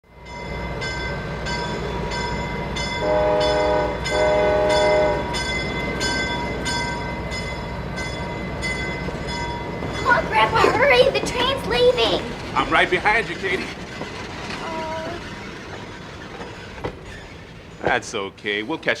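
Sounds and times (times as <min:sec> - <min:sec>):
train horn: 0:03.0 - 0:05.4
steady rumble: 0:09.2 - 0:18.2.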